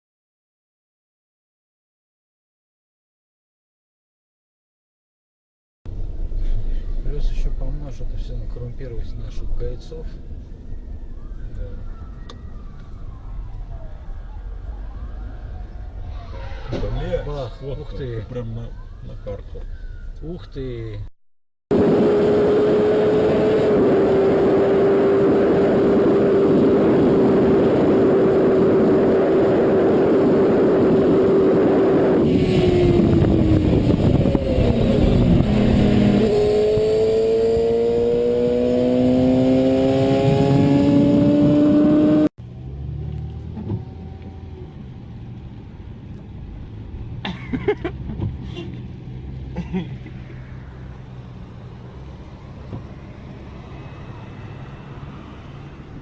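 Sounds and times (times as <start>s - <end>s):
road and wind noise: 5.9s - 21.1s, 21.7s - 56.0s
car engine accelerating: 21.7s - 56.0s.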